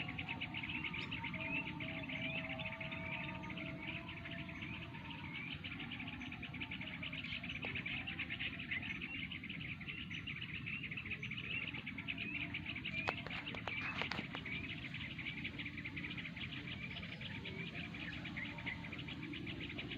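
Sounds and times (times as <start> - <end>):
bulbuls chattering chorus: 0.0 - 19.9.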